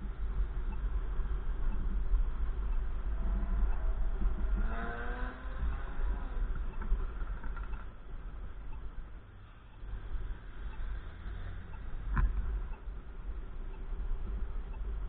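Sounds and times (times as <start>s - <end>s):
vehicle engine passing: 3.2s - 6.8s.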